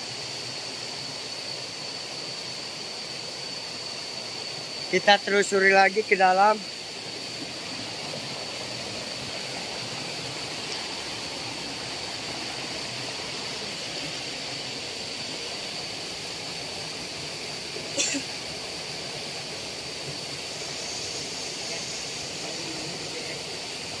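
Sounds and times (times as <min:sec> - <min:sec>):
waterfall rushing: 0:05.0 - 0:24.0.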